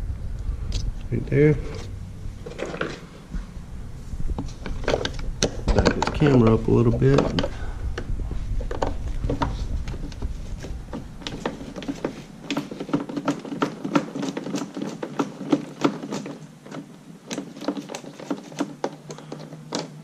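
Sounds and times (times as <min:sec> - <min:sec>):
low handling rumble: 0:00.0 - 0:12.4
hands and tools tapping and clicking: 0:04.4 - 0:20.0.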